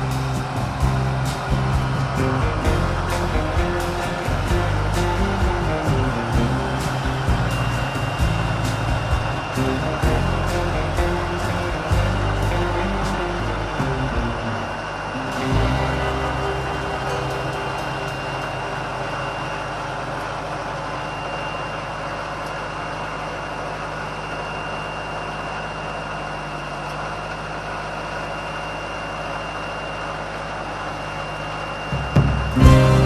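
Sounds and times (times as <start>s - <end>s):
bandsaw mill engine drone: 0.0s - 21.5s.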